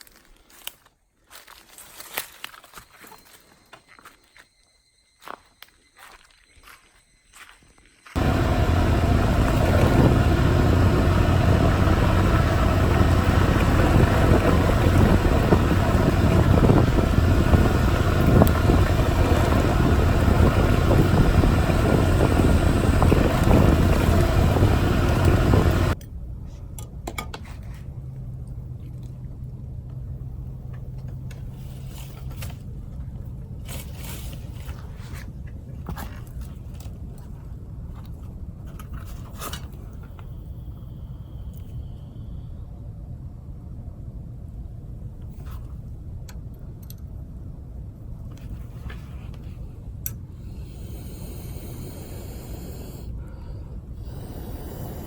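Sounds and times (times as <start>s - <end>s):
low hum: 8.1s - 55.0s
moped engine running: 8.2s - 26.0s.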